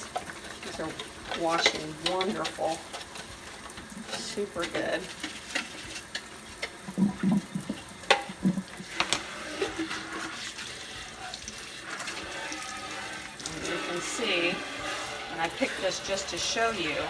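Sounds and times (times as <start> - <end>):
dishes clinking and knocking: 0.0 - 17.0
tap running into sink: 0.0 - 17.0.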